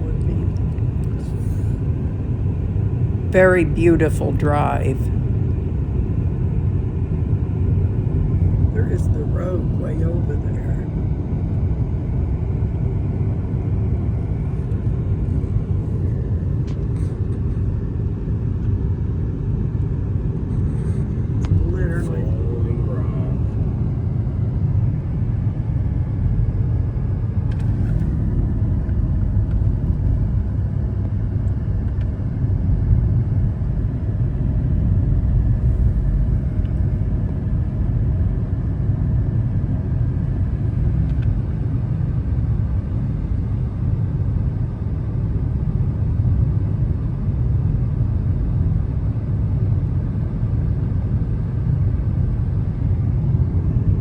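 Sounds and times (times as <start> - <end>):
car engine: 0.0 - 6.4.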